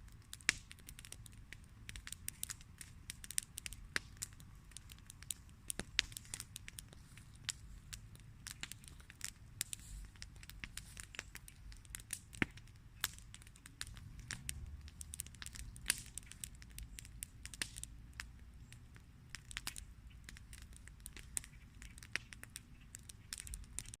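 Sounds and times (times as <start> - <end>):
campfire crackling: 0.0 - 24.0
low rumble: 13.8 - 16.0.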